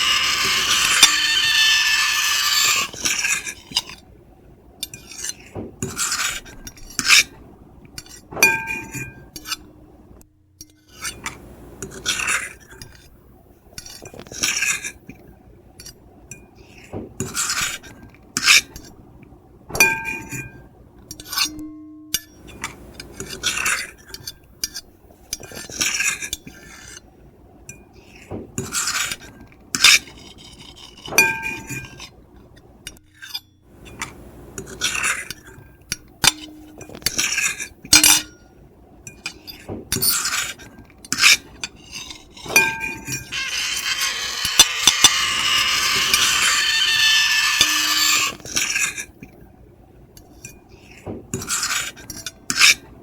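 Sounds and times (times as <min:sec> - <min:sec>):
fork and knife scraping plate: 0:00.0 - 0:04.0, 0:39.5 - 0:49.2, 0:50.4 - 0:52.8
plate ringing clink: 0:42.6 - 0:48.3.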